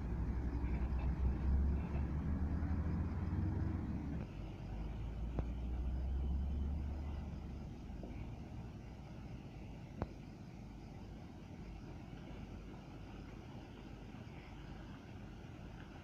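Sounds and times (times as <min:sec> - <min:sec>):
truck engines rumbling: 0:00.0 - 0:10.0.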